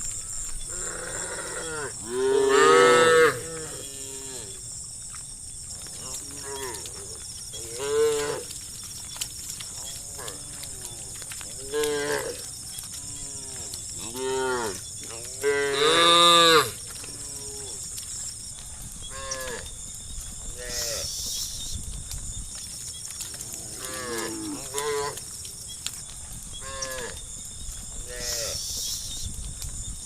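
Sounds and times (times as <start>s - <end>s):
cows mooing: 0.7s - 4.6s, 6.1s - 8.5s, 9.8s - 17.8s, 23.3s - 25.2s
high insect buzz: 11.6s - 25.8s, 26.4s - 30.0s.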